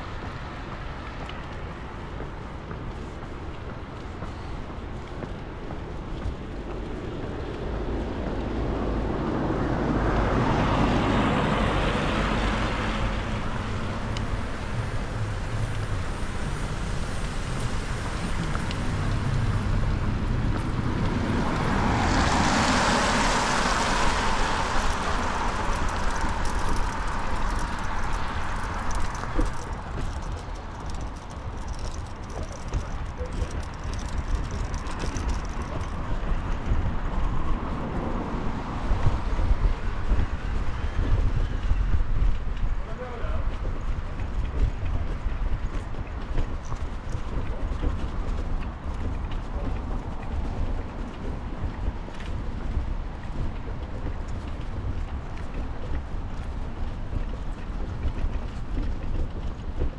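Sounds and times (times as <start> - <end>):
low rumble of traffic: 0.0 - 59.9
car tyres hissing on wet road: 21.3 - 29.3.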